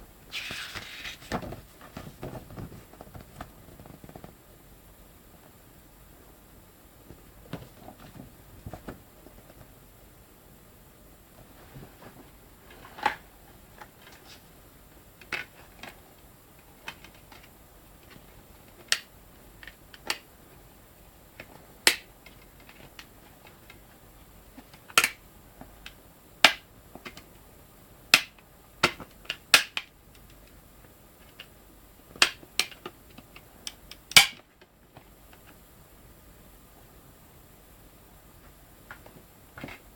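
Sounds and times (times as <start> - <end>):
clicks and taps of disc cases: 16.8 - 20.2, 24.6 - 27.3, 28.1 - 30.5.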